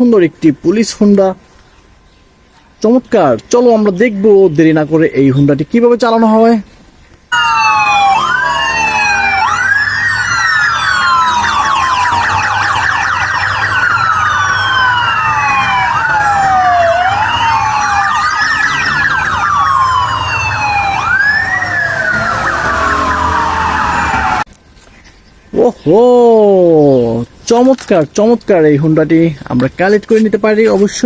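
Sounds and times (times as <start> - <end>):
police sirens wailing: 7.3 - 24.5.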